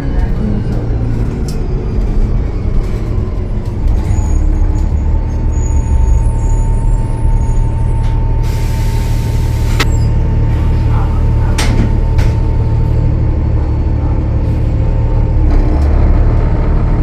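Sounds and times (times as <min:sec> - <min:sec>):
bus diesel engine: 0:00.0 - 0:17.0
air brakes hissing: 0:07.4 - 0:12.5.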